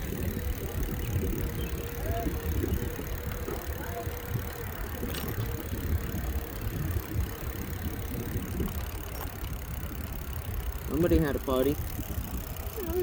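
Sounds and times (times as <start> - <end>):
bicycle tyre noise: 0.0 - 13.0
wind rumbling on microphone: 0.0 - 13.0.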